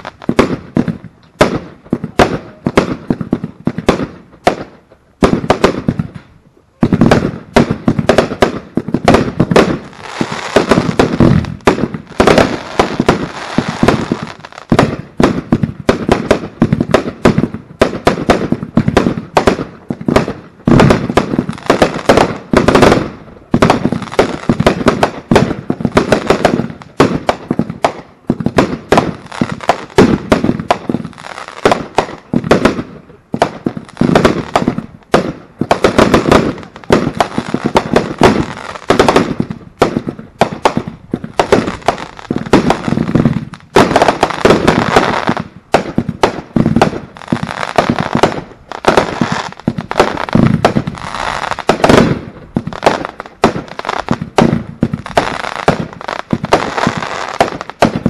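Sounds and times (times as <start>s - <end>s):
fireworks bangs: 0.0s - 58.0s
fireworks crackle: 0.0s - 58.0s.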